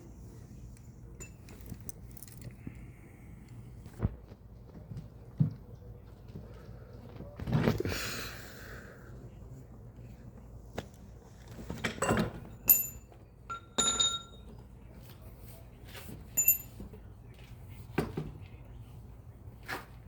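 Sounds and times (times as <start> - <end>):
metal tools knocking: 1.2 - 2.4, 11.9 - 14.6, 16.4 - 16.9
sharp metallic clinks: 1.2 - 2.4, 12.0 - 14.5, 16.4 - 16.8.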